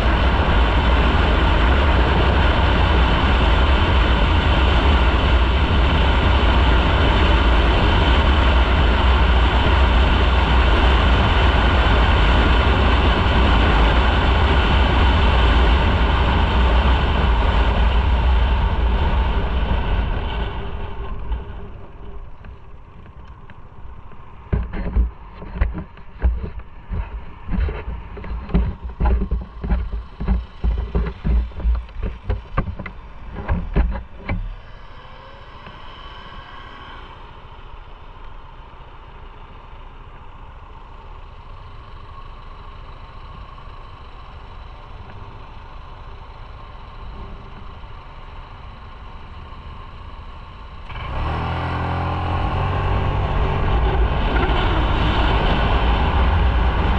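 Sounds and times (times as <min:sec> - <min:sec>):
wind buffeting microphone: 0:00.0 - 0:34.4, 0:51.7 - 0:56.9
motorcycle engine and road noise: 0:00.0 - 0:56.9.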